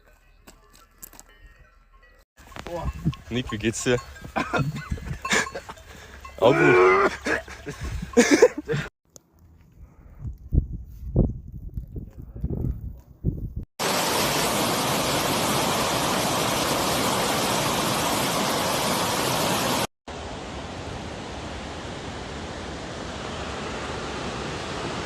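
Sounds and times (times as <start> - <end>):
rushing water: 13.8 - 25.0.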